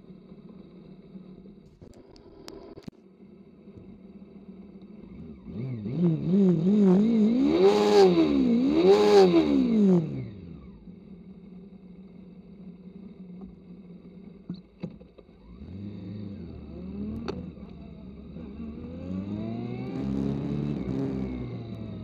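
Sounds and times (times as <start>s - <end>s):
motorcycle engine idling and revving: 0.0s - 22.0s.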